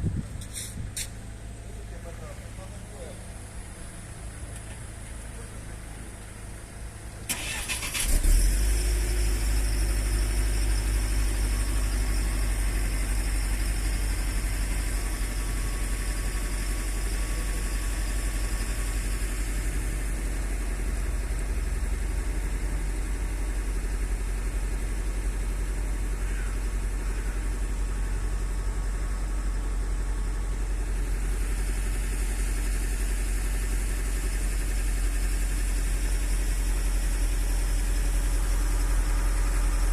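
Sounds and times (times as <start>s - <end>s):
engine starting and idling: 7.0s - 29.3s, 30.8s - 39.9s.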